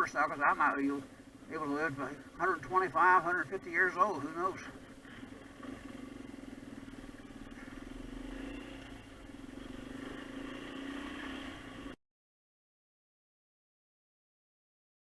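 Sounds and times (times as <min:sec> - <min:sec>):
dirt bike engine running: 0:02.4 - 0:12.0.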